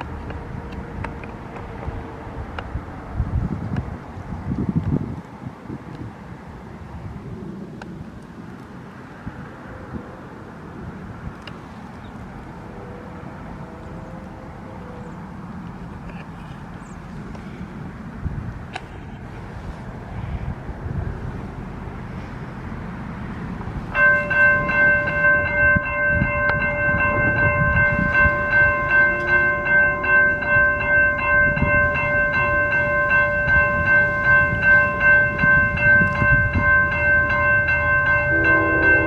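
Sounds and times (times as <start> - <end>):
locomotive horn: 12.5 - 15.1, 24.0 - 39.0
crossing bell ringing: 23.9 - 39.0.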